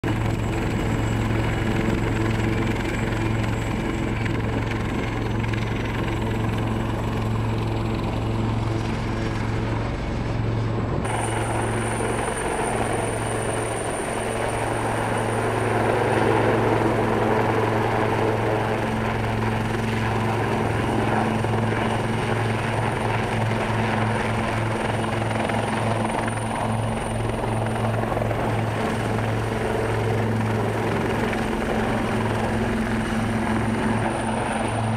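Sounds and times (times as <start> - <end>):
helicopter rotor and engine drone: 0.0 - 34.9.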